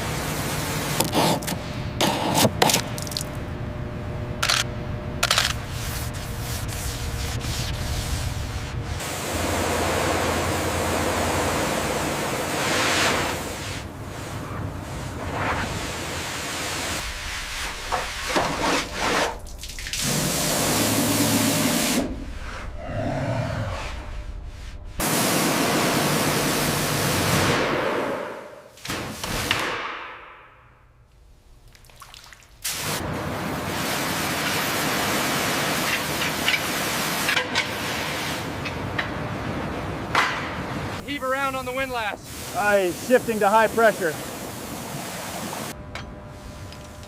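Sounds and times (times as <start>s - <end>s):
high-pressure water spray hissing: 15.7s - 19.3s, 19.9s - 22.1s, 32.6s - 33.0s, 33.7s - 38.5s, 41.2s - 45.8s.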